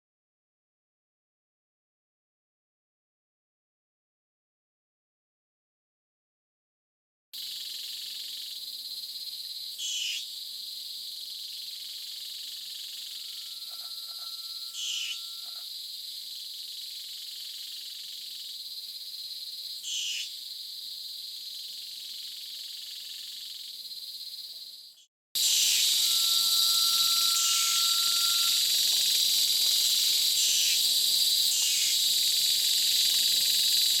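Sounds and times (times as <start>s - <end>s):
high insect drone: 7.4s - 34.0s
bird's long level whistle: 9.8s - 10.2s, 12.5s - 15.7s, 19.8s - 20.3s, 25.4s - 32.1s.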